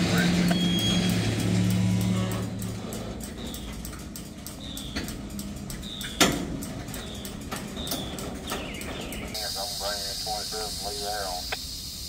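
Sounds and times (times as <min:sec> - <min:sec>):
train wheels clicking and knocking: 0:00.0 - 0:09.4.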